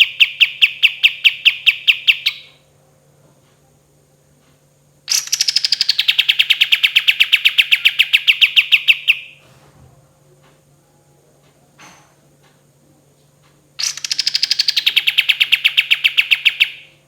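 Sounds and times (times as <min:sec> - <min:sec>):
bird singing rapid trill: 0:00.0 - 0:02.6, 0:05.1 - 0:09.4, 0:13.8 - 0:17.0
faint steady hum: 0:00.0 - 0:17.0.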